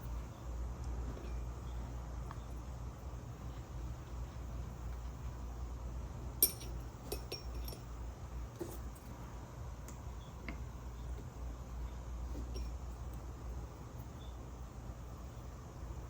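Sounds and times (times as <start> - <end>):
steady low hum: 0.0 - 16.0
tools clinking on work surface: 6.4 - 8.0, 12.4 - 12.8.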